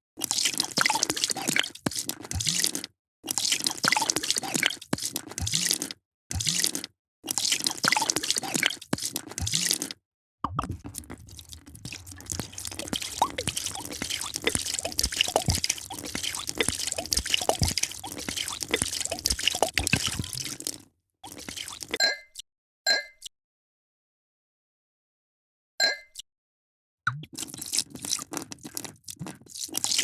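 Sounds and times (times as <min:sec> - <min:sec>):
liquid pouring into glass: 0:10.5 - 0:22.0.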